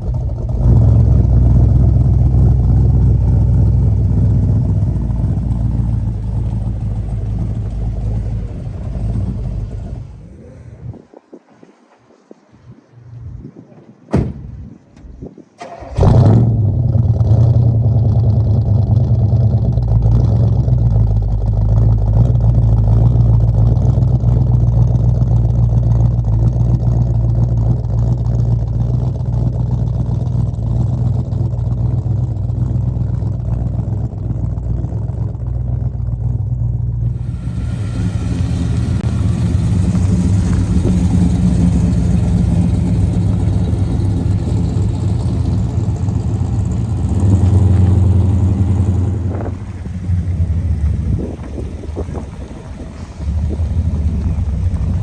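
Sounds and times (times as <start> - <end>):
car engine starting and running: 0.0 - 11.4, 14.1 - 55.0
hiss: 37.1 - 41.9.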